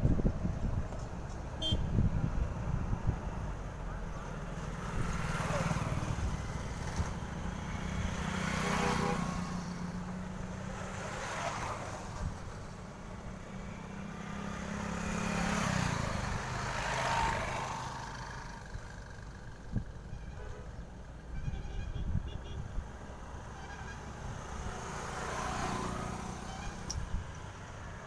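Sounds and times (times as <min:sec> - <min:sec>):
trucks passing: 0:00.0 - 0:28.0.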